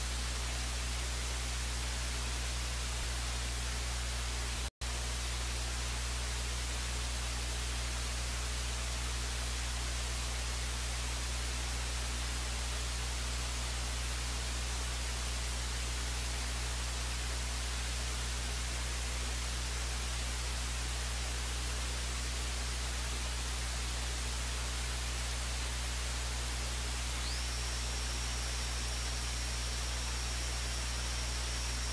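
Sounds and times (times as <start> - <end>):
low electrical hum: 0.0 - 31.9
steady hiss: 21.2 - 31.9.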